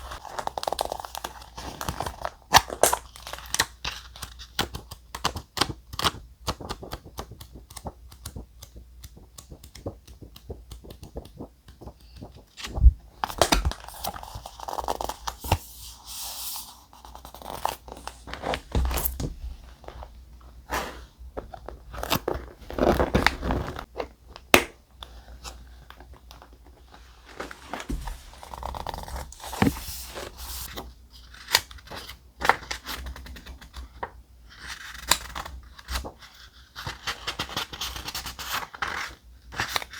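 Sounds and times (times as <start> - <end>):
paper crinkling and tearing: 27.3 - 30.8.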